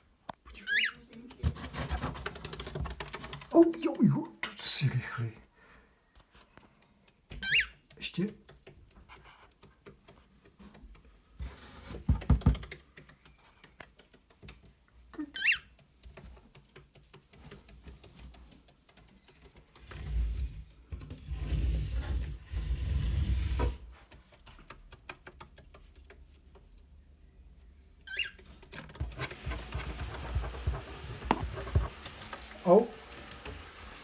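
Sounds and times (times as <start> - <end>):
rustling: 1.0 - 3.9, 28.1 - 34.0
bird claws tapping on hard floor: 9.7 - 14.8.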